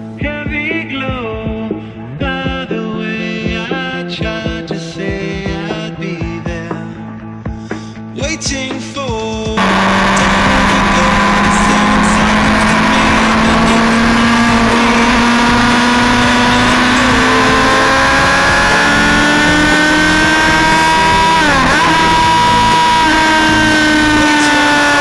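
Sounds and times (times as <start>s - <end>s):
motorcycle engine accelerating: 9.6s - 25.0s.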